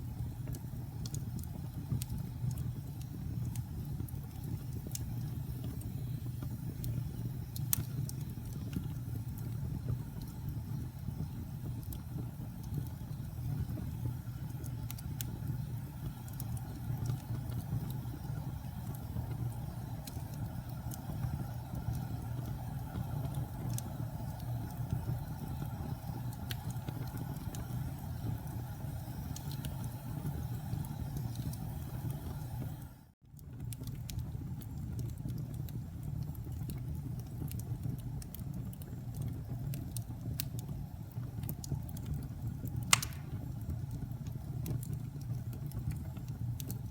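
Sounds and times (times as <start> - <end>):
campfire burning: 0.0 - 46.9
wood crackling and popping: 0.1 - 46.9.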